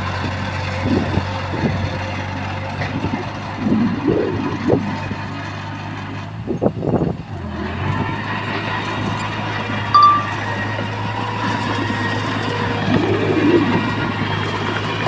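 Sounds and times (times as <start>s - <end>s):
heavy machinery diesel engine: 0.0s - 15.0s
brief high tone: 10.0s - 10.6s.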